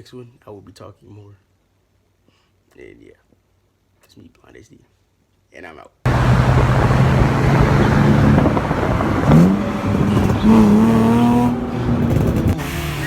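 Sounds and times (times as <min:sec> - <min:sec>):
car engine revving: 0:06.1 - 0:13.0.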